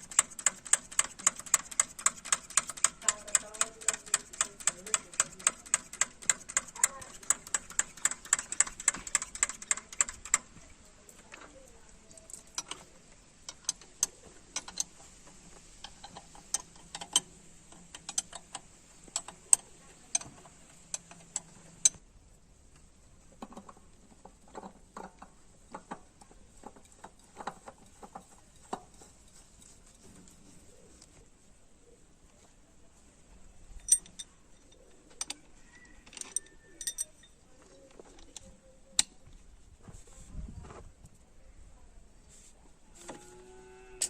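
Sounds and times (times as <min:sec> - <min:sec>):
hand tools clicking on metal: 0:00.0 - 0:10.6, 0:13.4 - 0:15.0, 0:15.8 - 0:22.0, 0:33.8 - 0:35.4, 0:36.0 - 0:37.4.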